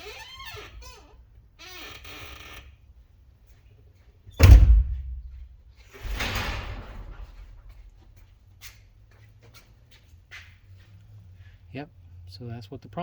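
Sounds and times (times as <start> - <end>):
loud slam: 4.4 - 8.0.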